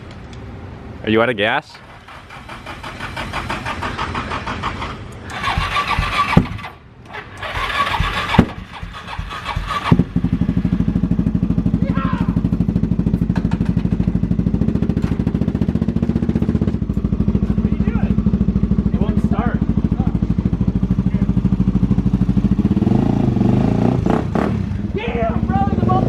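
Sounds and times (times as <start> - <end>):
engine idling: 1.7 - 23.0
engine cranking on starter: 1.8 - 10.2.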